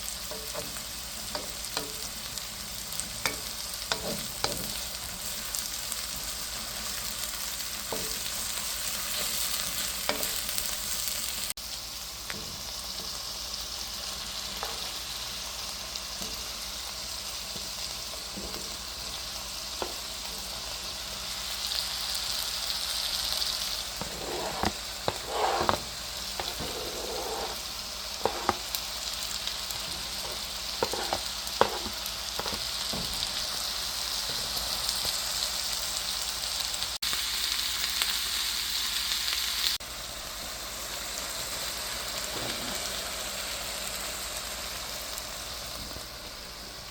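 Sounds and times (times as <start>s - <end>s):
food frying with sizzle: 0.0s - 46.9s
utensil scraping a pan: 0.3s - 4.9s, 14.6s - 15.0s, 23.9s - 28.8s, 29.7s - 33.4s, 42.3s - 43.0s.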